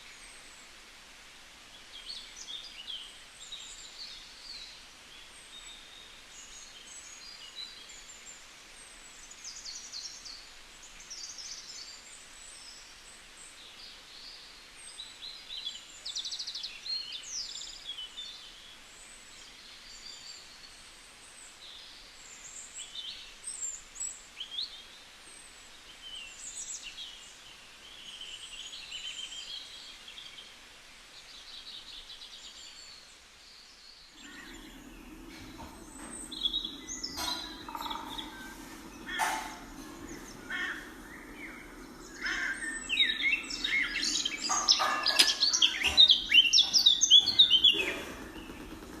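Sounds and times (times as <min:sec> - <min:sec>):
steady background hiss: 0:00.0 - 0:49.0
flock of birds chirping: 0:31.1 - 0:49.0.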